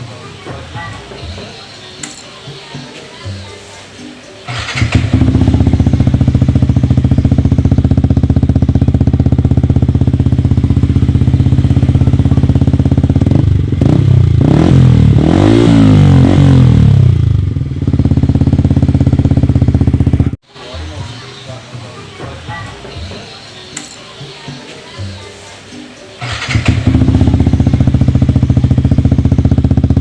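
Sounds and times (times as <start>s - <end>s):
motorcycle engine idling and revving: 4.4s - 20.4s, 26.2s - 30.0s.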